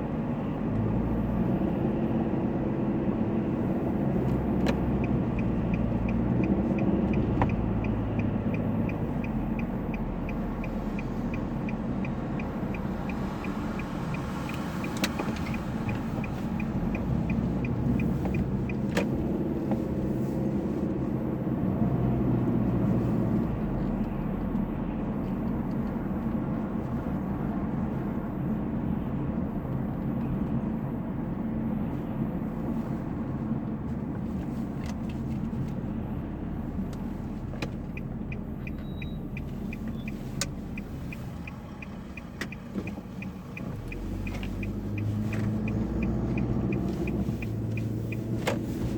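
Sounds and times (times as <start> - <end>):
low rumble of cars: 0.0 - 48.9
light regular ticking: 4.6 - 19.4, 36.8 - 48.7.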